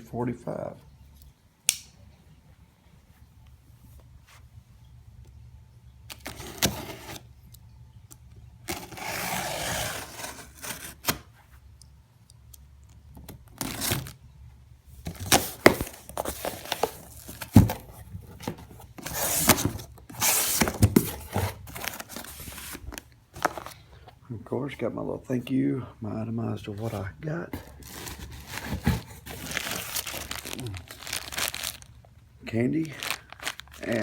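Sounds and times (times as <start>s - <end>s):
cardboard scraping and crinkling: 6.2s - 7.3s, 8.7s - 11.6s, 13.6s - 14.1s, 15.0s - 23.8s, 26.8s - 31.9s, 32.9s - 34.0s
packing tape tearing: 8.7s - 11.3s, 19.0s - 23.8s, 27.6s - 31.9s, 32.8s - 34.0s.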